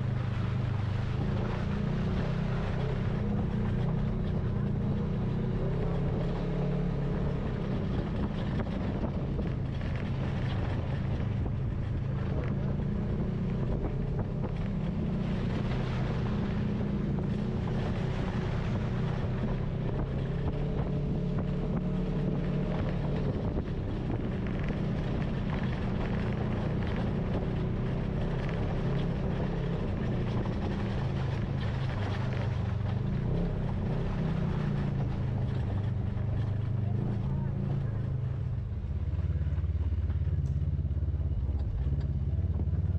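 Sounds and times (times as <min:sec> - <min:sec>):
vehicle engine running: 0:00.0 - 0:42.9
wind buffeting microphone: 0:07.4 - 0:37.0.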